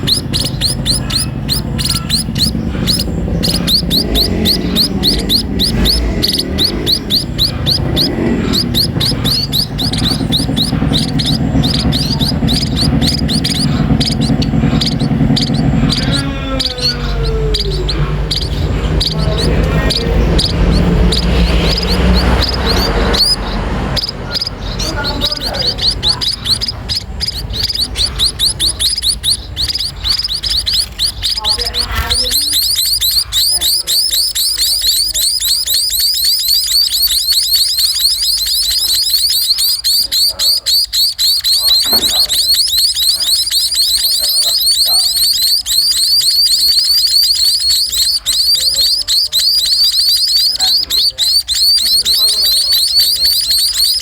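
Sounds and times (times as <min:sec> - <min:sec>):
sparrows chirping rapidly: 0:00.0 - 0:54.0.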